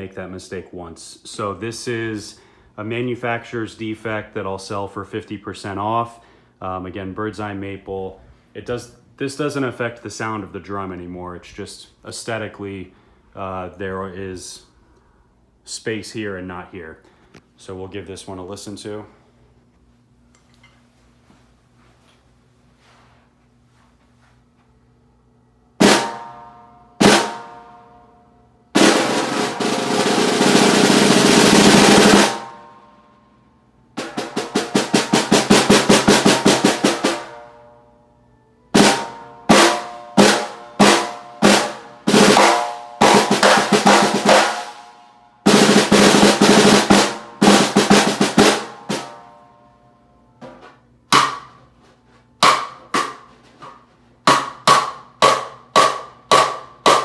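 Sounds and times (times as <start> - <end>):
snare drum hits and rolls: 25.8 - 27.7, 28.8 - 32.7, 34.0 - 37.5, 38.8 - 44.9, 45.5 - 49.2, 51.1 - 51.6, 52.4 - 57.0.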